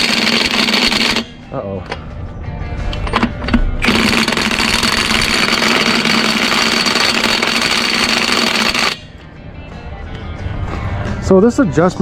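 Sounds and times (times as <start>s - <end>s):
impact wrench hammering: 0.0s - 1.4s, 3.2s - 9.1s.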